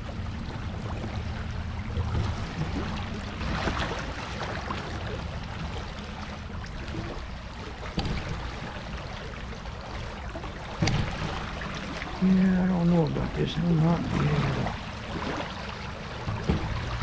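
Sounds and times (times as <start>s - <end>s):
creek water running and splashing: 0.0s - 17.0s
low handling rumble: 0.0s - 17.0s
short knocks: 6.8s - 8.6s.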